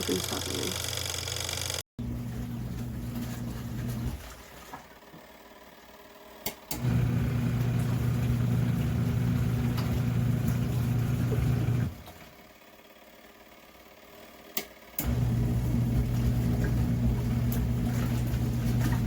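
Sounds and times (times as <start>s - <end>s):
washer motor humming: 0.0s - 19.0s.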